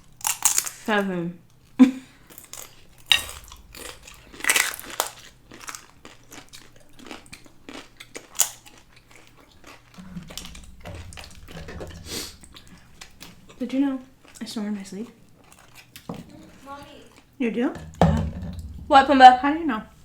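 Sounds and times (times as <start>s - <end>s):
person chewing and crunching: 0.0s - 0.9s, 1.6s - 16.1s.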